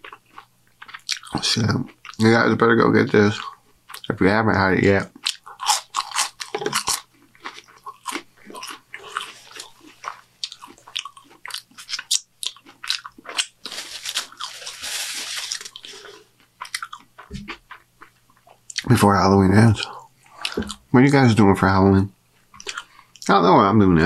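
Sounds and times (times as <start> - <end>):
chewing and crunching food: 0.0 - 19.0, 19.7 - 20.9, 22.3 - 23.4
steady rustling hiss: 7.1 - 23.8.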